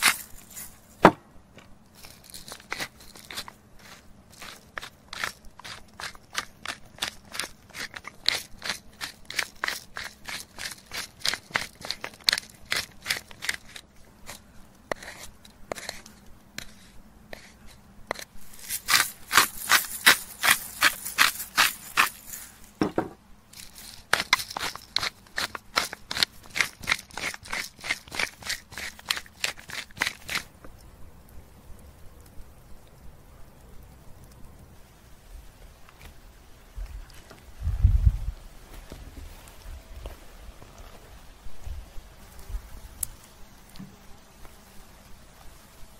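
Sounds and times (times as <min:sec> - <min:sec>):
knife scraping bone: 0:02.3 - 0:22.3, 0:23.6 - 0:30.5.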